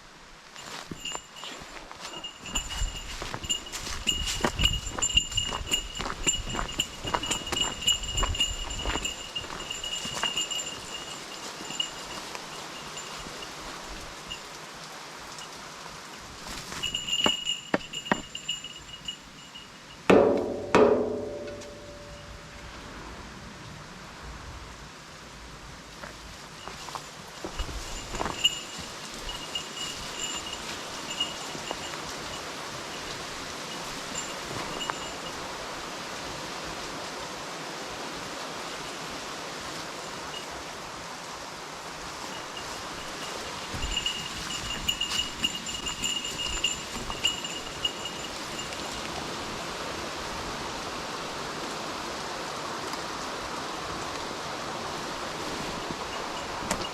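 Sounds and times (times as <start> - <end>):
mountain stream rushing: 0.0 - 19.6, 20.5 - 56.9
loud ringing knocks: 20.1 - 22.5
high thin tone: 20.1 - 22.7.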